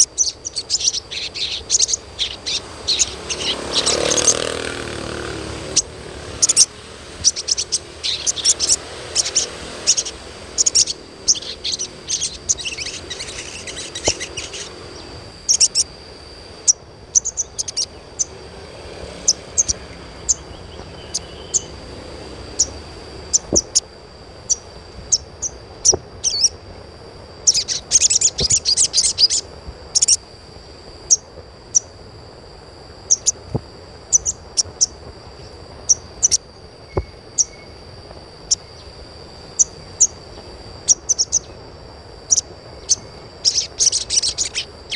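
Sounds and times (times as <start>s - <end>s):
bird giving sharp high chirps: 0.0s - 15.9s, 16.6s - 21.8s, 22.5s - 23.8s, 24.5s - 26.6s, 27.4s - 30.2s, 33.1s - 33.4s, 42.3s - 44.9s.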